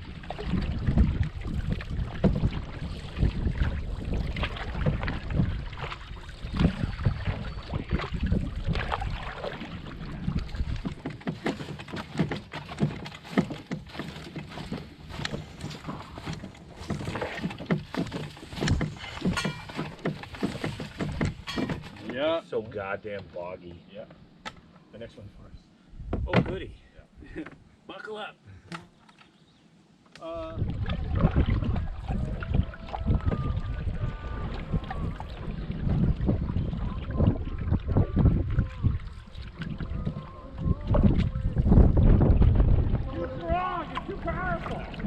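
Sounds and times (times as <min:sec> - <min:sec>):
wind buffeting microphone: 0:00.0 - 0:11.0, 0:25.4 - 0:26.8, 0:30.3 - 0:45.0
paddle splashing in water: 0:00.0 - 0:22.9, 0:30.2 - 0:45.0
paddle knocking against hull: 0:00.0 - 0:23.4, 0:26.0 - 0:26.8, 0:30.6 - 0:45.0.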